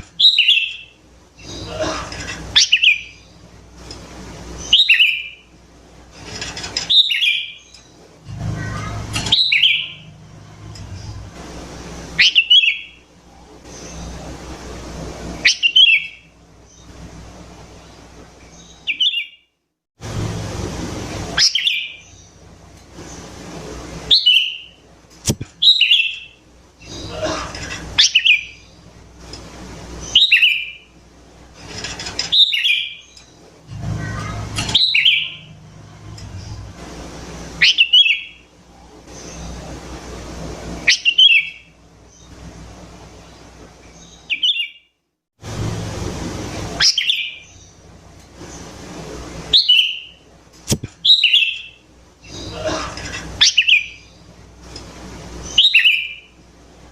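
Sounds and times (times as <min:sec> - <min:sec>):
bird singing falling phrases: 0:00.1 - 0:03.5, 0:04.5 - 0:05.4, 0:06.8 - 0:11.2, 0:17.8 - 0:19.4, 0:25.5 - 0:27.2, 0:32.2 - 0:36.7, 0:37.6 - 0:38.4, 0:49.5 - 0:50.2, 0:50.9 - 0:52.6, 0:53.4 - 0:54.3, 0:55.4 - 0:56.3.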